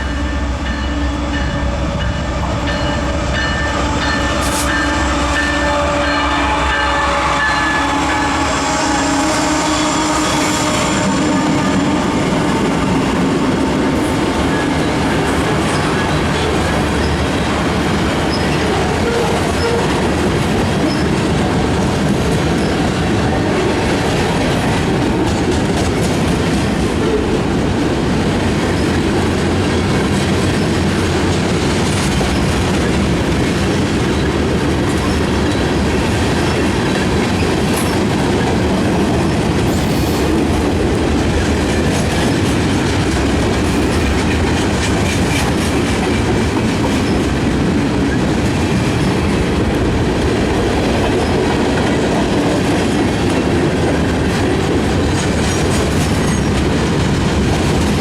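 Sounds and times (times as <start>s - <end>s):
freight train rumbling past: 0.0s - 58.0s
wheels clacking over rail joints: 12.2s - 58.0s.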